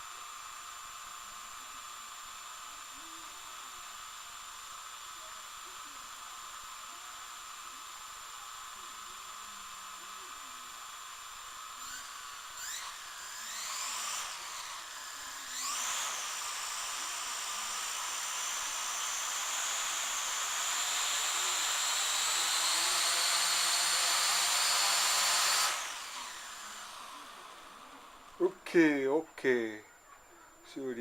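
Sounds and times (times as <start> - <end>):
drone motors whining: 9.9 - 28.8.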